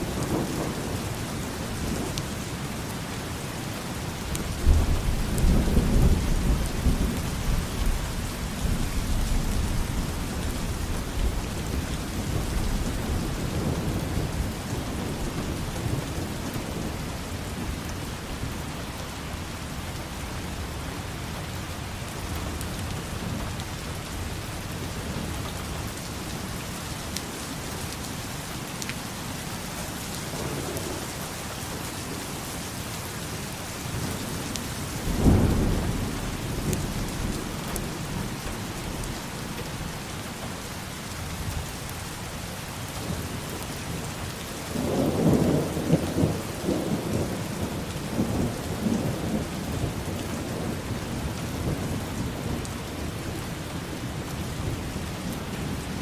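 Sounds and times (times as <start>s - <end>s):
heavy rain falling: 0.0s - 56.0s
thunder rumbling: 4.5s - 17.9s, 30.0s - 40.1s, 44.7s - 53.2s.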